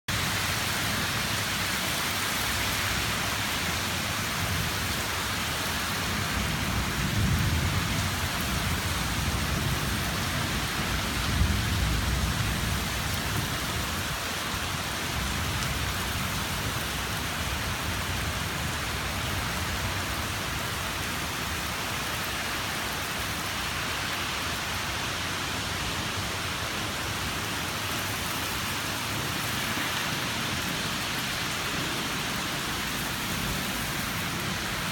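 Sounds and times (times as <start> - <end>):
heavy rain falling: 0.1 - 34.9
low thunder rumbles: 6.2 - 13.6.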